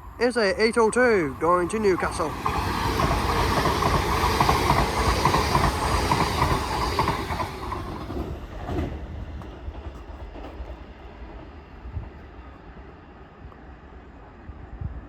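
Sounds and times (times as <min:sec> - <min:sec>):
train passing: 0:00.0 - 0:14.8
wheels clacking on rail: 0:00.4 - 0:12.2.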